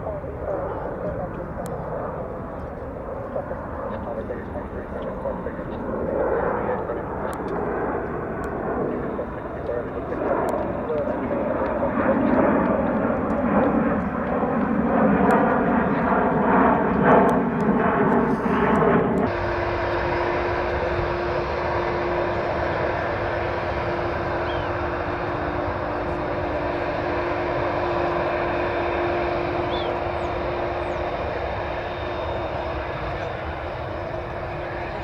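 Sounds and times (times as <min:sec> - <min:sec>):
jet engine roar: 0:00.0 - 0:35.0
engine hum: 0:18.1 - 0:35.0.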